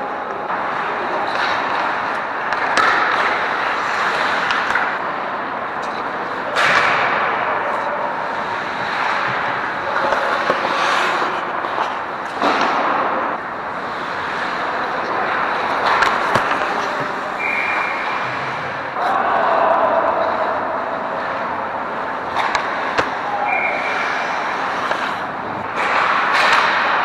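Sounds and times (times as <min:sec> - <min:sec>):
skates scraping ice: 0:00.1 - 0:27.0
stick hitting puck: 0:01.3 - 0:05.0, 0:06.5 - 0:07.5, 0:08.6 - 0:13.5, 0:14.2 - 0:18.6, 0:21.9 - 0:27.0.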